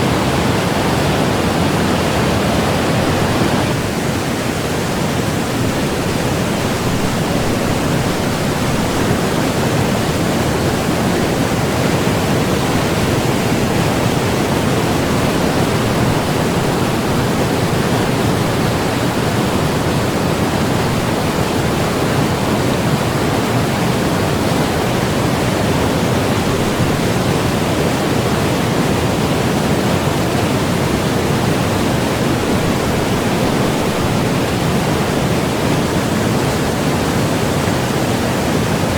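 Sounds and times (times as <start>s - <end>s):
rushing river rapids: 0.0s - 38.9s.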